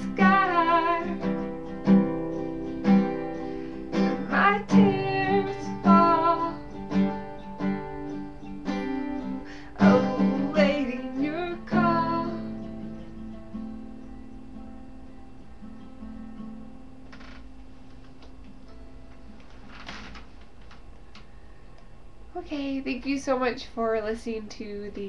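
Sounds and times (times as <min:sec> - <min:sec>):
woman singing: 0:00.0 - 0:01.5, 0:04.0 - 0:07.0, 0:08.7 - 0:12.7
acoustic guitar strumming: 0:00.0 - 0:19.4.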